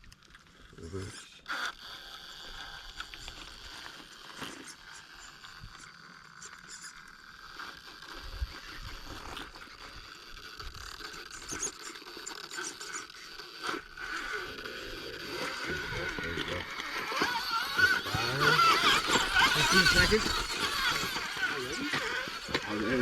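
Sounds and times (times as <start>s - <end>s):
small electric motor whining: 0.0s - 23.0s
tires scraping and clicking on rock: 0.0s - 23.0s.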